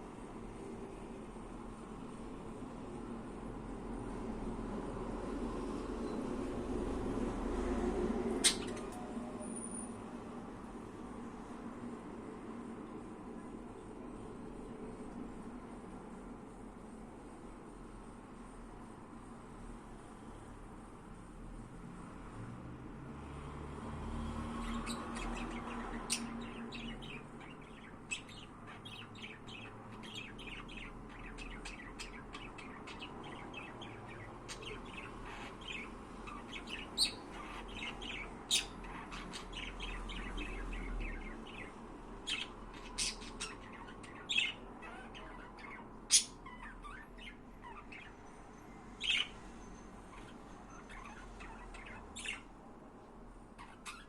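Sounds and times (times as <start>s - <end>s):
budgerigars chirping: 8.4s - 9.0s, 24.6s - 48.2s, 49.0s - 49.4s, 50.1s - 52.5s, 53.6s - 54.0s.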